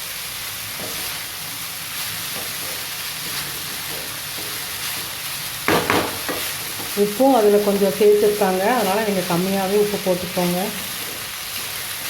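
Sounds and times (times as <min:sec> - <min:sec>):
fried rice sizzling in a pan: 0:00.0 - 0:12.0.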